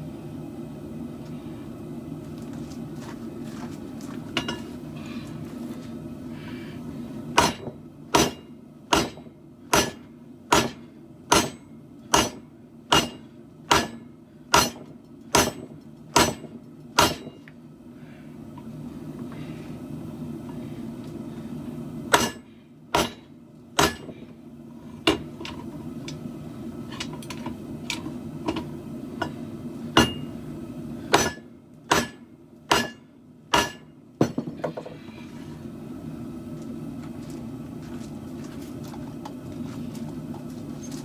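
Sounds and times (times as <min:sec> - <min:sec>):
steady low hum: 0:00.0 - 0:41.0
hammer striking steel: 0:07.4 - 0:17.4, 0:22.1 - 0:24.1, 0:30.0 - 0:30.4, 0:31.1 - 0:34.5.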